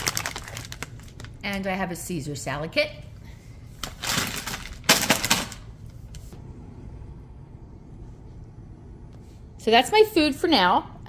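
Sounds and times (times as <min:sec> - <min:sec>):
plastic packaging crinkling: 0:00.0 - 0:01.7, 0:03.8 - 0:05.7.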